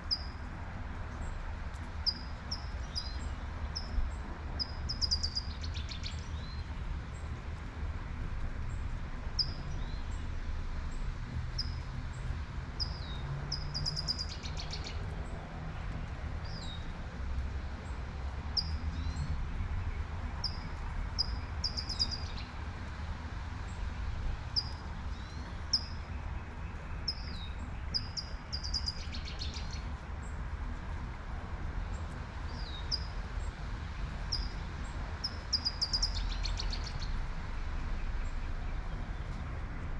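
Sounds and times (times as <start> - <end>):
low rumble of traffic: 0.0 - 39.9
birds chirping and trilling: 35.2 - 37.1.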